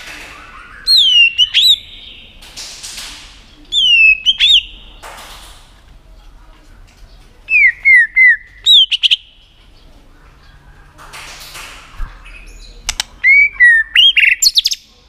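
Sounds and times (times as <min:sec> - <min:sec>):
bird whistling and clicking calls: 0:00.0 - 0:05.1, 0:06.9 - 0:09.3, 0:11.9 - 0:14.8.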